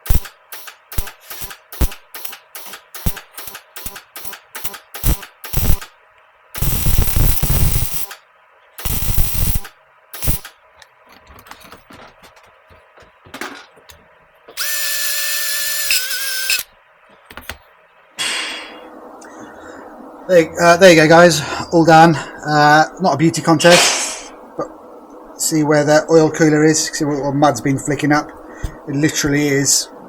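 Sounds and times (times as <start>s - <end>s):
power tool motor running: 0.0s - 5.9s, 6.6s - 8.2s, 8.8s - 10.5s, 14.6s - 16.7s
rough bursts of metalwork noise: 0.0s - 5.9s, 6.6s - 8.2s, 8.8s - 10.6s, 14.6s - 16.7s.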